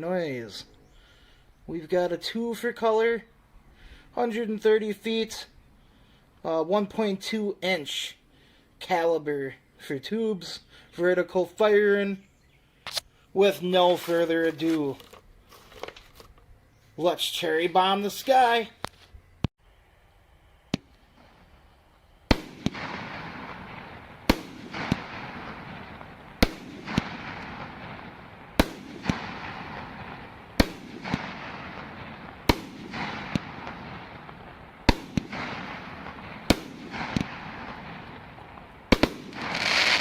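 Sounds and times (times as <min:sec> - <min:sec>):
firework crackling: 0:20.7 - 0:40.0
firework bangs: 0:22.2 - 0:40.0
firework pops: 0:24.3 - 0:27.7, 0:28.6 - 0:29.9, 0:30.6 - 0:40.0.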